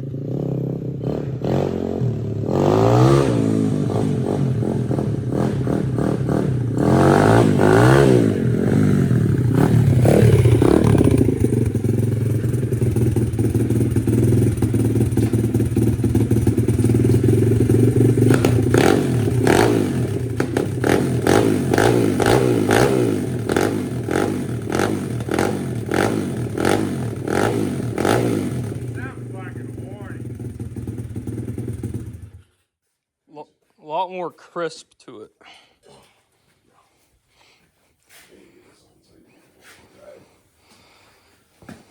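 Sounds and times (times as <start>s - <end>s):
pit bike engine revving: 0.0s - 32.4s.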